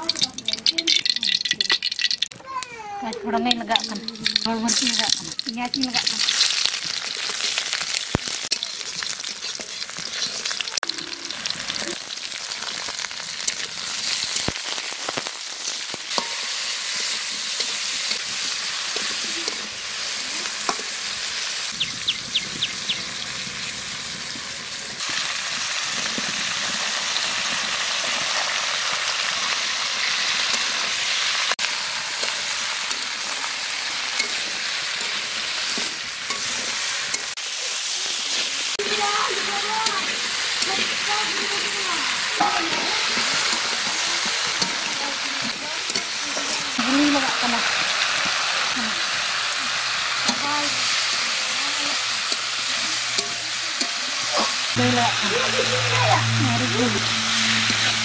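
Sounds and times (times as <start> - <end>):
vegetables sizzling in hot oil: 0.0 - 58.0
metal spatula scraping pan: 34.2 - 37.4, 39.8 - 46.8, 52.2 - 58.0.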